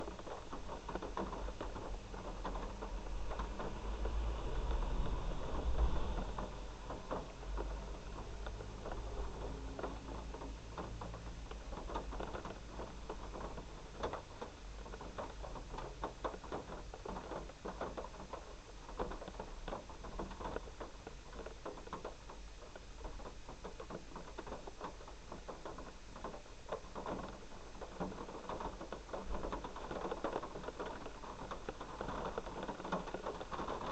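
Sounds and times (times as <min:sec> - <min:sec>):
heavy rain pattering: 0:00.0 - 0:33.9
low rumble: 0:02.7 - 0:10.2.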